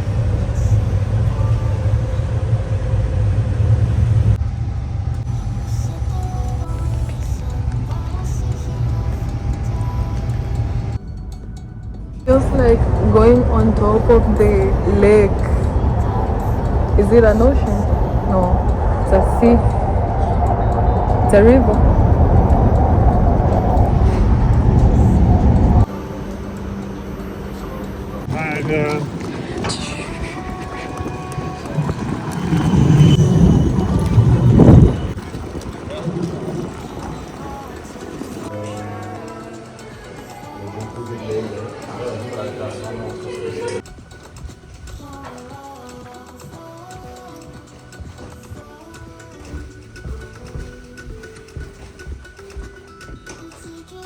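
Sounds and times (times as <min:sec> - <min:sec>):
vehicle rumble from inside: 0:00.0 - 0:26.6, 0:31.5 - 0:36.9
faint steady hum: 0:00.0 - 0:49.0.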